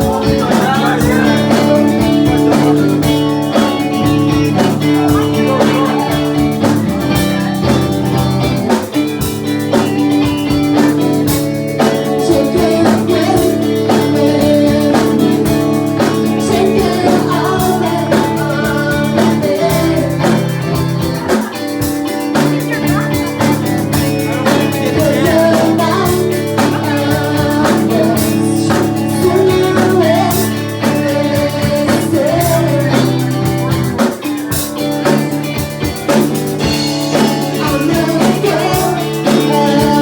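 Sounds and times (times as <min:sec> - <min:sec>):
guitar: 0:00.0 - 0:40.0
person singing: 0:00.0 - 0:40.0
steady drum beat: 0:00.0 - 0:40.0.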